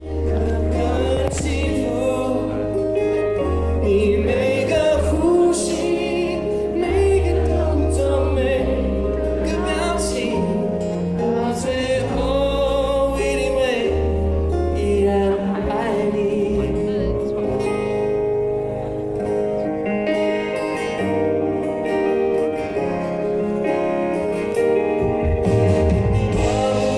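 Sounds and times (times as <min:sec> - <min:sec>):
person singing with vibrato: 0:00.0 - 0:18.1, 0:24.5 - 0:26.9
live pop ballad band: 0:00.0 - 0:26.9.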